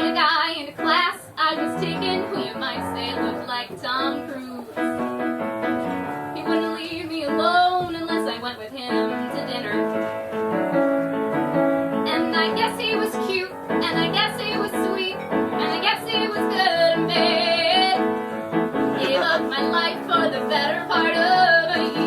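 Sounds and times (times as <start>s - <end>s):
woman singing: 0.0s - 4.7s, 6.4s - 9.9s, 12.0s - 18.1s, 19.0s - 22.0s
piano accompaniment: 0.0s - 22.0s.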